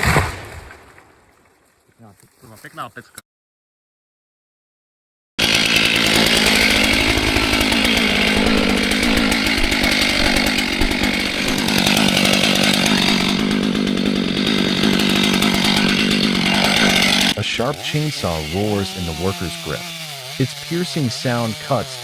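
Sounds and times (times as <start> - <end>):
chainsaw running at high speed: 5.4 - 22.0.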